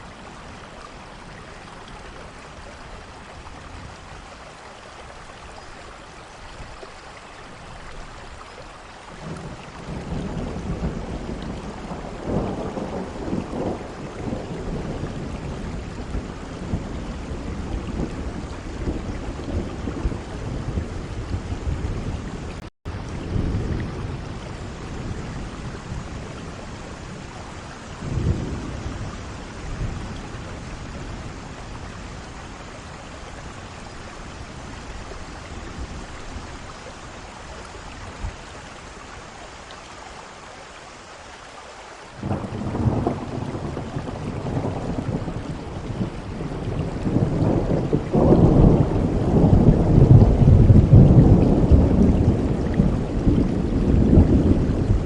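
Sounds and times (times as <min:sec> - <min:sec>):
heavy rain: 0:00.0 - 0:55.0
thunder rumbling: 0:09.2 - 0:38.9, 0:42.2 - 0:55.0.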